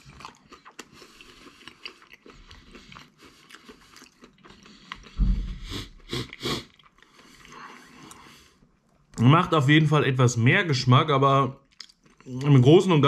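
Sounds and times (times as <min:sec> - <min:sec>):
man chewing food: 0:00.0 - 0:09.2, 0:11.6 - 0:12.6
low thump: 0:05.2 - 0:06.0.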